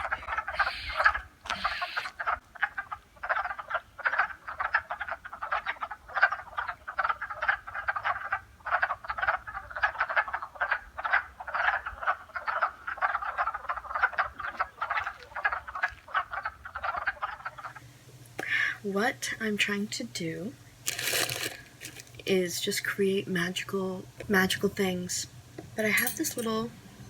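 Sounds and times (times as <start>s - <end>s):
chorus of frogs calling: 0.0s - 17.8s.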